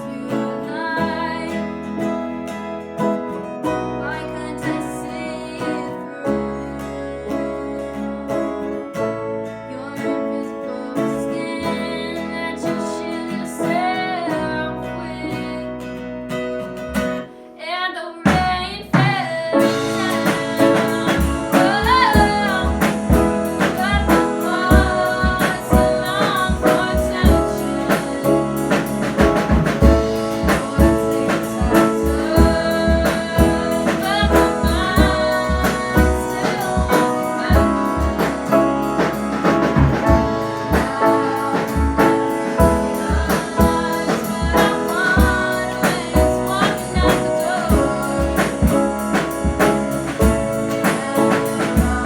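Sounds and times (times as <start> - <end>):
person singing: 0.0 - 2.1, 4.0 - 9.0, 9.6 - 15.8, 17.6 - 52.0
guitar: 0.0 - 52.0
drum kit hits: 18.3 - 52.0.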